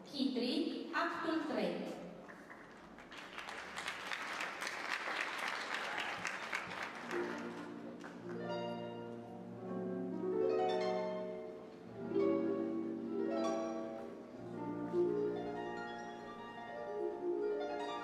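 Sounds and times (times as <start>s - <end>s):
audience applauding: 2.3s - 8.7s
orchestral music: 6.5s - 18.0s.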